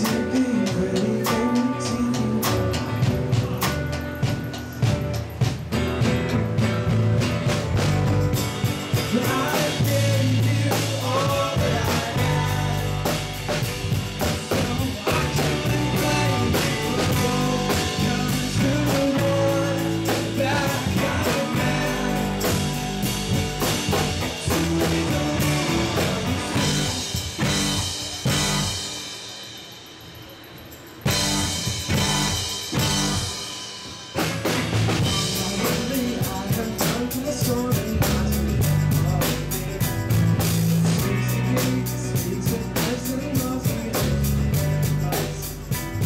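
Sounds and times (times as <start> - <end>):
person singing: 0.0 - 3.9, 8.9 - 13.3, 14.2 - 23.0, 24.2 - 28.4, 35.0 - 40.0, 40.8 - 45.6
drum kit: 0.0 - 46.0
rock band playing: 0.0 - 46.0.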